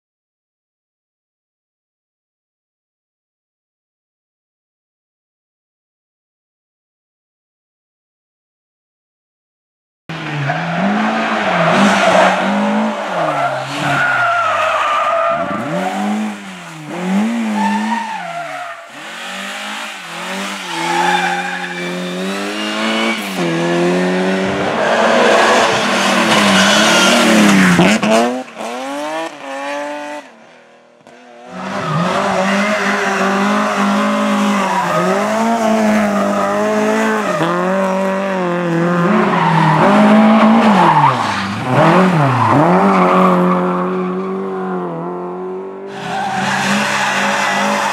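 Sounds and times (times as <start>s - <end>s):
rally car engines revving: 10.1s - 47.9s.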